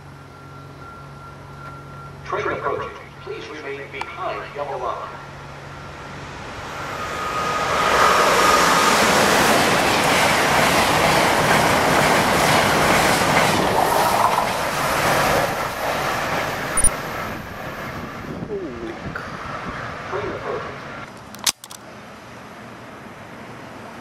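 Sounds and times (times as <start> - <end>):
train rushing past: 3.1 - 21.0.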